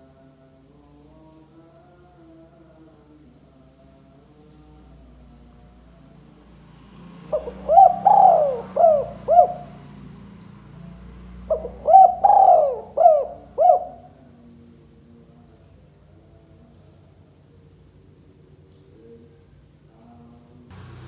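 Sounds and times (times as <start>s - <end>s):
dove cooing: 7.3s - 9.8s, 11.5s - 14.2s.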